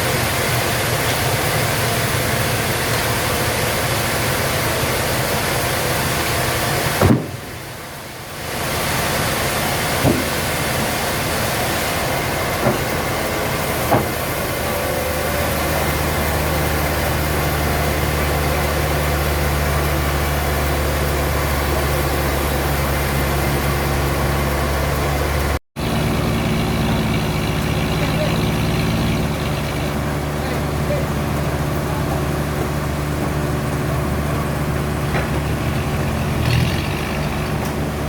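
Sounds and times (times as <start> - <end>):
low engine-like hum: 0.0 - 38.0
sawmill machinery hissing: 0.0 - 38.0
machinery knocks: 7.0 - 7.6, 10.0 - 10.6, 12.5 - 14.5, 35.0 - 35.8.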